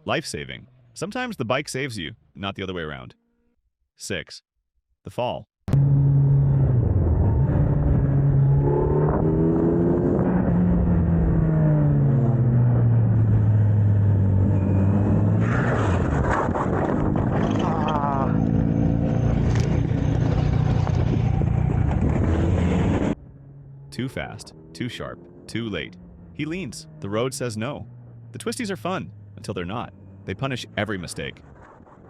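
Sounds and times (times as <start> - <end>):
motorcycle engine running at speed: 5.7 - 15.4, 16.3 - 28.4.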